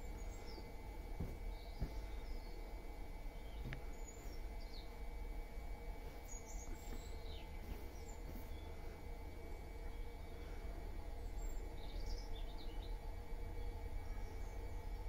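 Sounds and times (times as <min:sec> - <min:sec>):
low background hum: 0:00.0 - 0:15.0
small birds chirping: 0:00.0 - 0:15.0.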